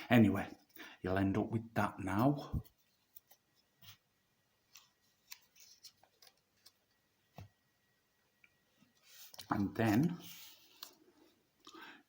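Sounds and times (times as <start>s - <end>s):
paper crinkling and creasing: 4.6s - 7.0s, 8.9s - 11.4s
soft paper clicks: 4.7s - 7.6s, 10.4s - 11.0s.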